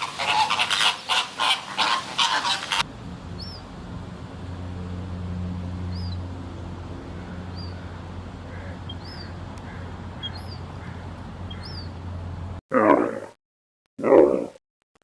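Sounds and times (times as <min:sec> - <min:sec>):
goose honking: 0:00.0 - 0:03.6, 0:06.9 - 0:12.1
steady low hum: 0:02.7 - 0:12.6
small bird chirping: 0:03.3 - 0:03.7, 0:05.8 - 0:06.3, 0:07.1 - 0:12.1.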